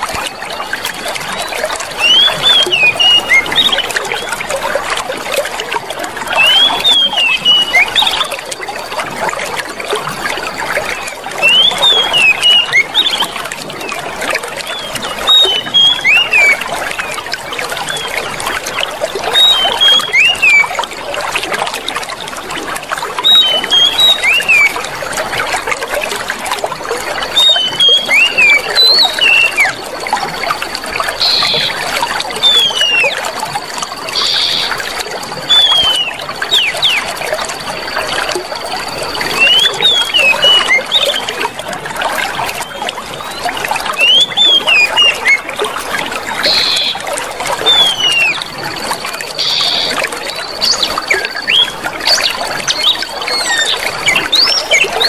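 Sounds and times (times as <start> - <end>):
chirping bird calls: 0.0 - 4.4, 6.3 - 8.4, 10.9 - 13.9, 14.6 - 20.8, 23.2 - 24.8, 27.2 - 29.9, 30.9 - 37.2, 37.8 - 41.5, 42.3 - 45.5, 46.3 - 55.0
water trickling: 0.0 - 55.0.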